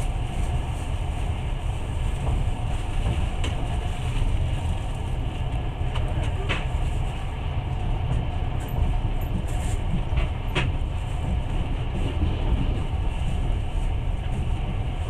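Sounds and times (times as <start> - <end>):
train wheels rumbling on track: 0.0 - 15.0
train wheels clicking: 8.0 - 15.0.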